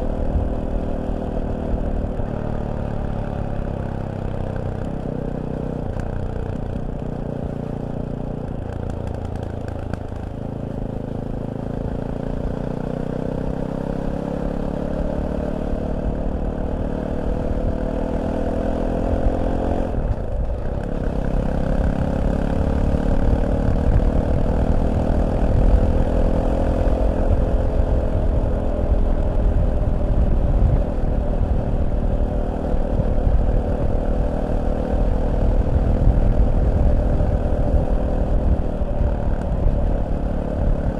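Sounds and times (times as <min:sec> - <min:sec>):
motorcycle engine accelerating: 0:00.0 - 0:40.9
wind rumble: 0:17.1 - 0:40.9.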